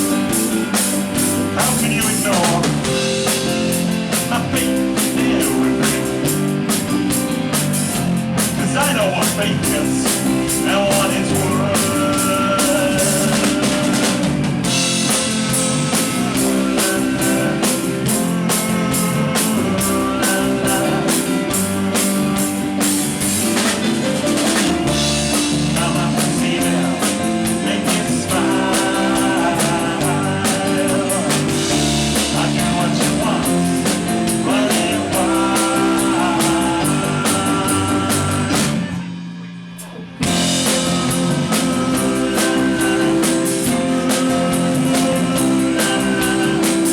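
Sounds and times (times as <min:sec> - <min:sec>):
drum kit beat: 0:00.0 - 0:39.2, 0:39.8 - 0:46.9
live rock band playing: 0:00.0 - 0:46.9.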